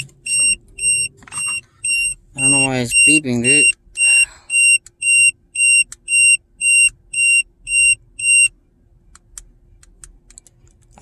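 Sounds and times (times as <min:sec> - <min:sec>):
short high-pitched alarm beeps: 0:00.0 - 0:08.5.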